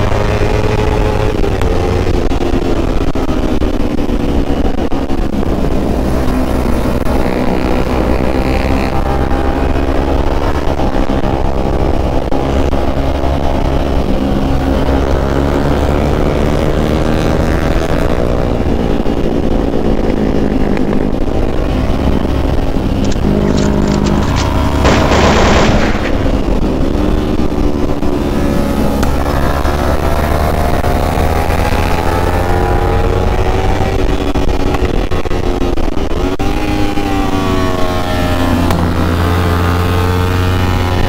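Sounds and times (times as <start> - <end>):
motorcycle engine running: 0.0 - 41.0
wind rumble on microphone: 0.0 - 41.0.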